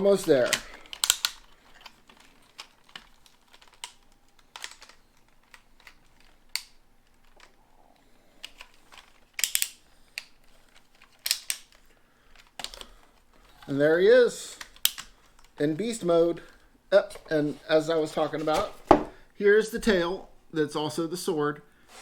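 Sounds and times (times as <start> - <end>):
plastic toy parts clicking and snapping: 0.2 - 13.8, 14.6 - 15.6.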